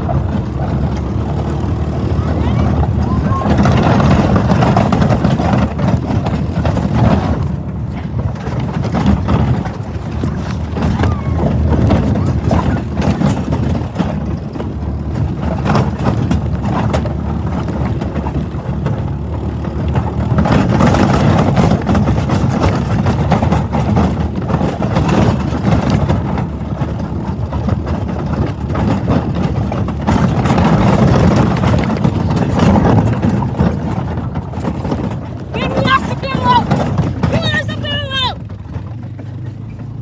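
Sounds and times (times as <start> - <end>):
atv engine rumbling: 0.0 - 40.0.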